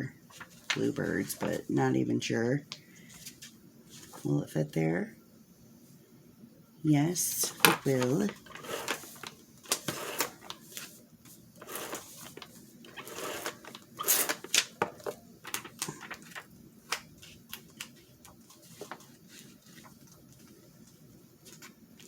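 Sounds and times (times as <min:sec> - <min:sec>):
paper rustling and crinkling: 0:00.3 - 0:01.8, 0:03.1 - 0:04.3, 0:07.4 - 0:22.0.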